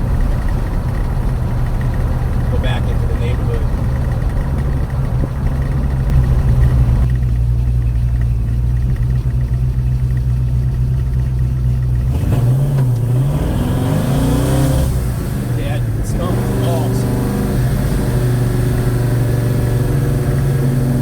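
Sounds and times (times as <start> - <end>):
car engine running: 0.0 - 21.0.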